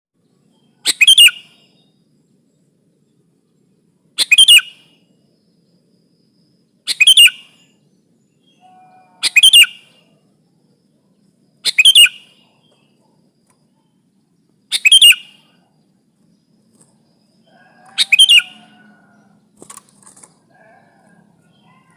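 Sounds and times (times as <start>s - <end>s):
bird chirping call: 0.3s - 2.6s, 4.2s - 10.3s, 11.0s - 21.9s.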